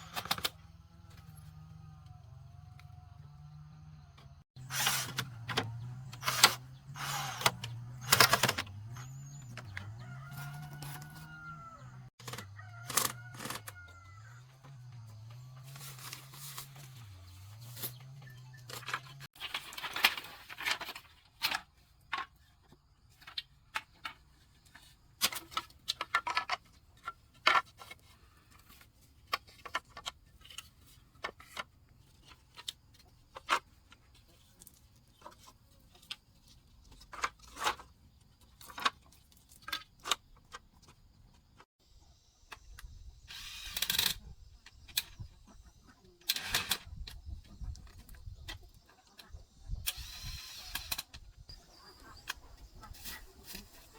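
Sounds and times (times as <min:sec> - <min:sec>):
rooster crowing: 0:09.7 - 0:14.6
chickens clucking: 0:44.2 - 0:49.8, 0:51.5 - 0:53.9.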